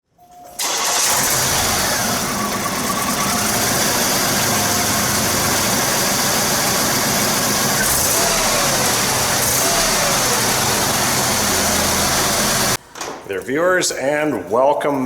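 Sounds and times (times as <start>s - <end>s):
car engine idling: 0.6s - 12.8s.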